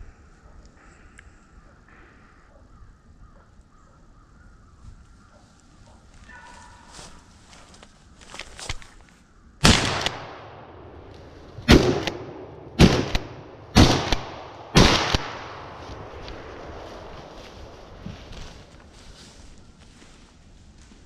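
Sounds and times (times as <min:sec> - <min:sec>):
shotgun shots: 0:09.6 - 0:11.0, 0:11.6 - 0:17.1.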